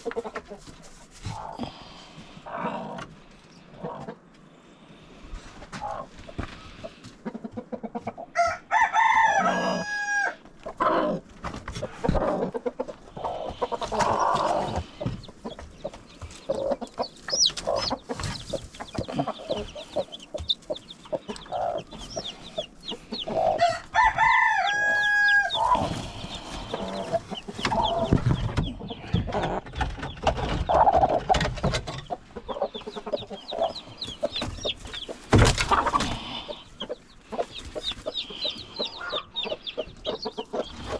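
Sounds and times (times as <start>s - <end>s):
hens clucking: 0.0s - 40.9s
rooster crowing: 8.4s - 10.4s, 23.6s - 25.8s
knocks and rustling: 25.7s - 32.2s, 34.3s - 36.3s.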